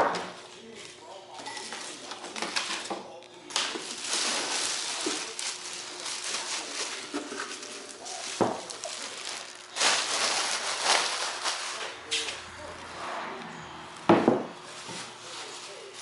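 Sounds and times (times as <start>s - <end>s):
packing material rustling: 3.5s - 12.3s.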